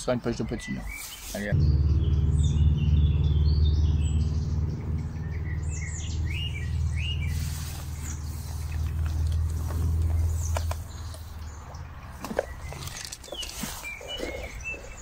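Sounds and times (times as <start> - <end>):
small birds chirping: 0.0 - 15.0
loud steady low drone: 1.5 - 10.4.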